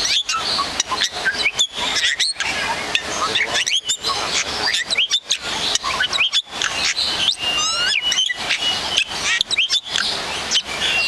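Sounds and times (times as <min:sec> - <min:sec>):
birds chirping: 0:00.0 - 0:11.0
steady noisy background: 0:00.0 - 0:11.0.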